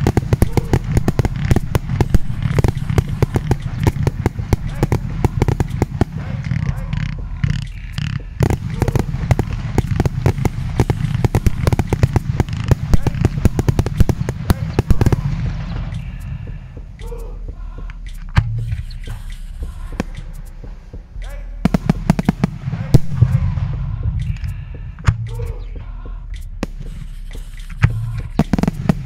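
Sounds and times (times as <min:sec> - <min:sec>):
fireworks popping and crackling: 0:00.0 - 0:17.0, 0:21.6 - 0:24.4, 0:26.5 - 0:29.0.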